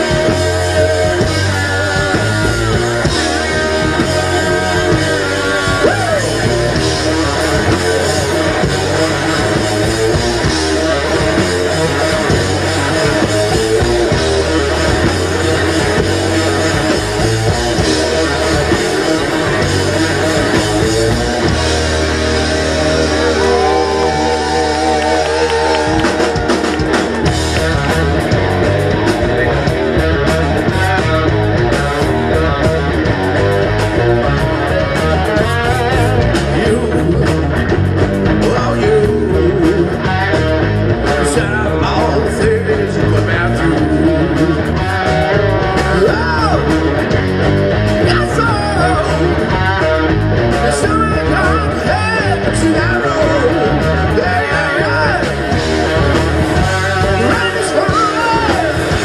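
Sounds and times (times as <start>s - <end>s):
electric guitar: 0.0s - 59.0s
live rock band playing: 0.0s - 59.0s.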